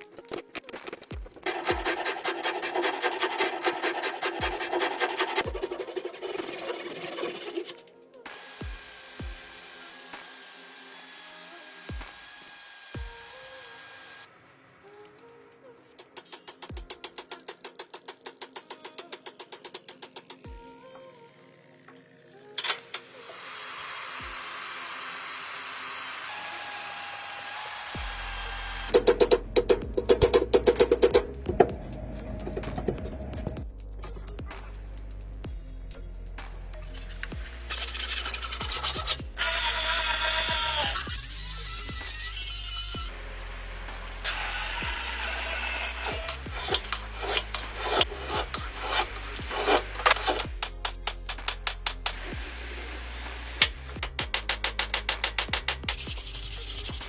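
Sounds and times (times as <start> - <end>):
rasping filing strokes: 1.4 - 7.9, 36.9 - 43.1, 44.3 - 57.0
power tool hissing: 8.3 - 14.3, 37.7 - 57.0.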